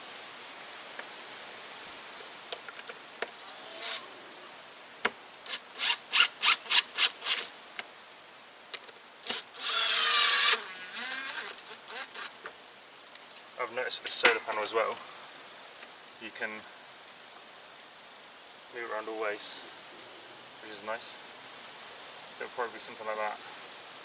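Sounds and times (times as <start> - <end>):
power tool whine: 9.2 - 12.3
rasping strokes: 9.2 - 12.4.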